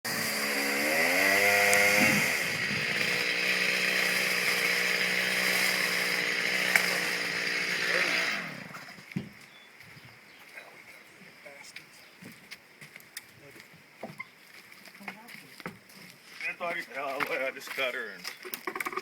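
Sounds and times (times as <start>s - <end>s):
chainsaw engine revving: 0.1s - 9.0s.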